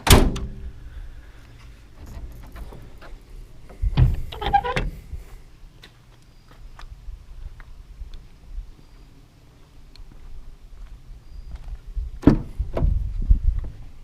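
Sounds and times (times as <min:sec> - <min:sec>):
clunks and rattles: 0:02.0 - 0:05.0
truck door shutting: 0:02.0 - 0:05.0.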